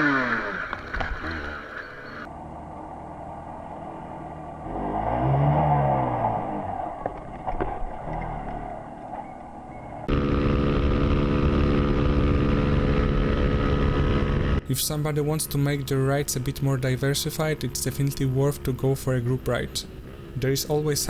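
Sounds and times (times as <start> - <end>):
motorcycle engine running steadily: 0.0 - 4.6, 9.8 - 21.0
motorcycle engine revving: 0.0 - 21.0
road noise: 0.0 - 21.0.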